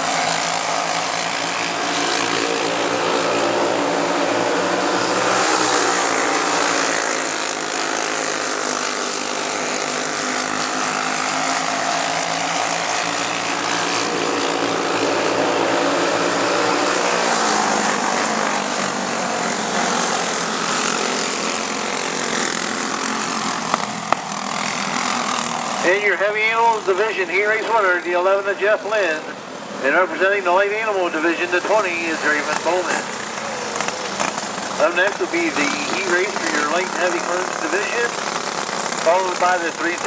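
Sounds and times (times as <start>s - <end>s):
go-kart engines racing: 0.0s - 40.0s.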